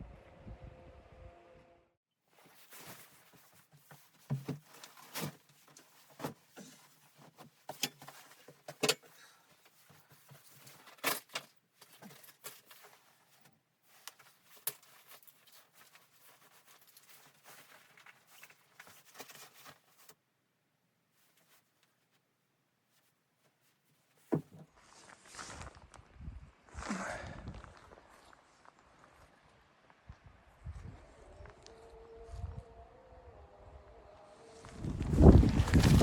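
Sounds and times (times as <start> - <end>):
faint rustle: 2.3 - 20.2, 21.1 - 26.1, 34.6 - 36.0.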